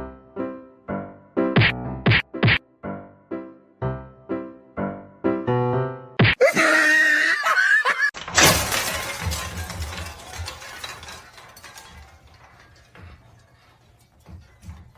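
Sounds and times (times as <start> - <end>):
loud shattering crash: 8.2 - 13.1.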